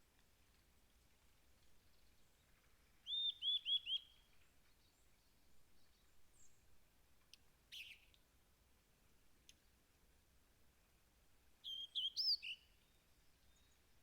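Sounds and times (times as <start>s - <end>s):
birds singing: 11.7s - 13.9s.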